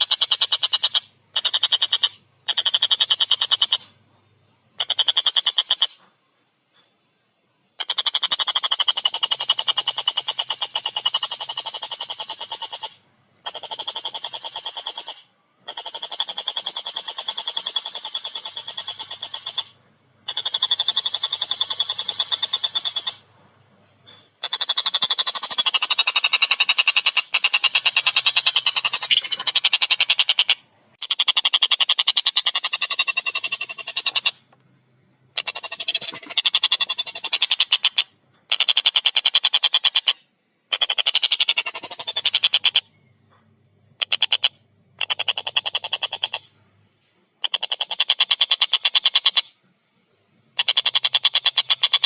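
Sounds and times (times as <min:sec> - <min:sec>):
kingfisher chattering: 0:24.4 - 0:34.4.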